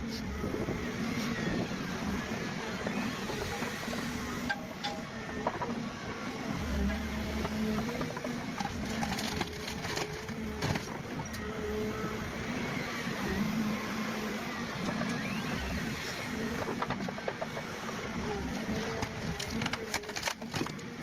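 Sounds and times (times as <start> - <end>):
heavy machine engine running: 0.0 - 21.0.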